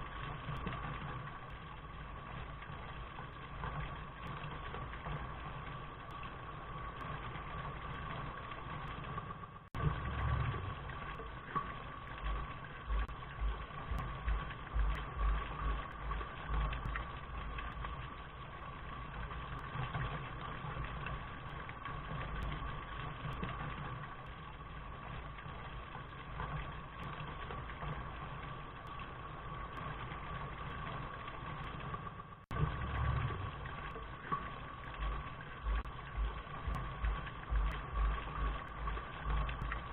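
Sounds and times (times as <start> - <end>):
steady rain: 0.0 - 39.9
low thumps: 35.0 - 39.8.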